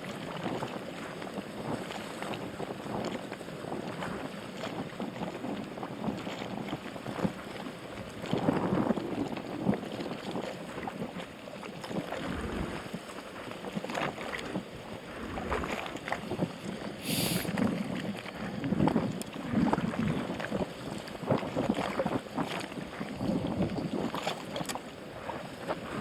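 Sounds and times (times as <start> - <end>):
wind buffeting microphone: 0.0 - 26.0
short high hiss: 17.0 - 17.5.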